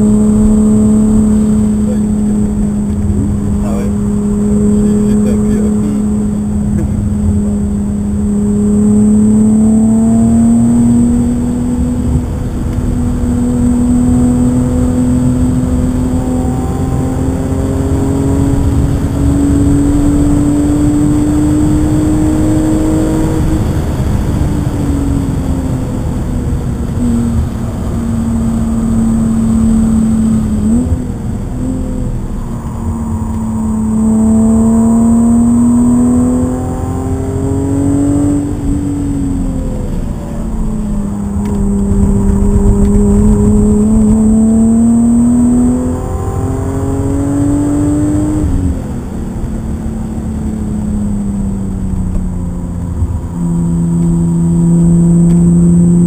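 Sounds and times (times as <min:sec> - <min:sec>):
car engine pulling hard: 0:00.0 - 0:56.0
tyre and road rumble: 0:17.5 - 0:47.4.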